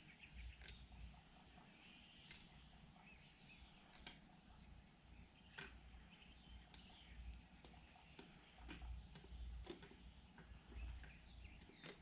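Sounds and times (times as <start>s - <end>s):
faint bird chirps: 0.0s - 12.0s
faint clicks: 3.8s - 4.3s, 6.6s - 12.0s.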